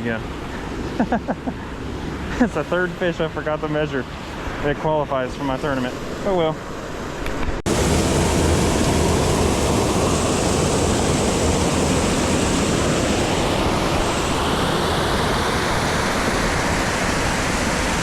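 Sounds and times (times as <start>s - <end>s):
waterfall rushing: 7.7s - 18.0s.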